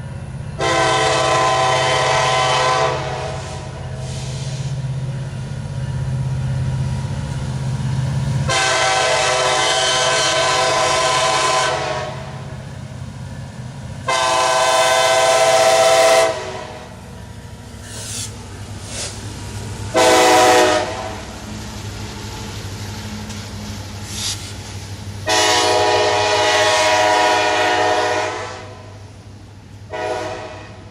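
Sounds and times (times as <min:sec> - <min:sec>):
diesel locomotives rumbling: 0:00.0 - 0:30.9
train air horn blasts: 0:00.6 - 0:04.6, 0:08.5 - 0:12.5, 0:14.0 - 0:16.9, 0:19.9 - 0:21.3, 0:25.2 - 0:29.0, 0:29.9 - 0:30.9.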